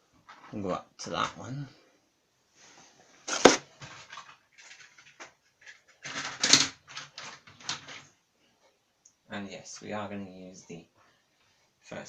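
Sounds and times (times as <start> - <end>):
plastic model train coaches rattling: 3.3 - 8.1.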